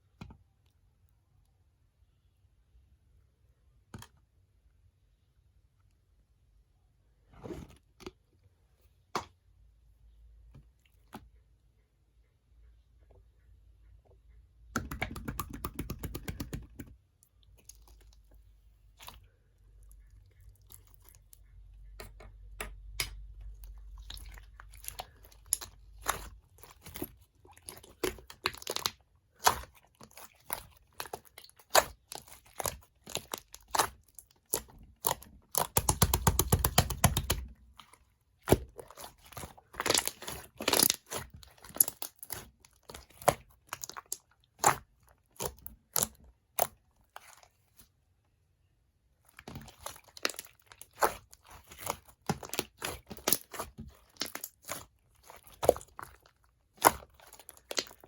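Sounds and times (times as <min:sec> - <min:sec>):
crunchy squishy handling: 0:15.0 - 0:22.1, 0:23.2 - 0:58.0.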